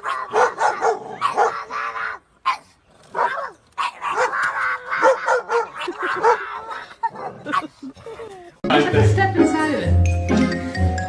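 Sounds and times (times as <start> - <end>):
dog barking: 0.0 - 7.7.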